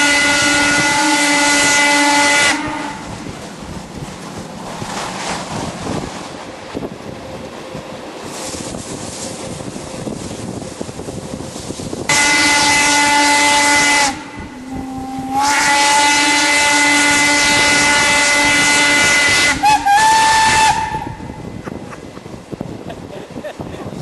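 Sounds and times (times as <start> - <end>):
steam locomotive whistle: 0.0 - 3.3, 12.1 - 21.4.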